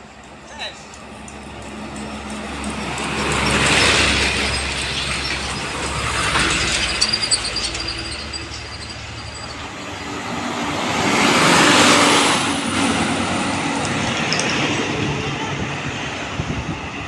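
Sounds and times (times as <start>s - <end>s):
heavy vehicles passing: 0.2s - 6.8s.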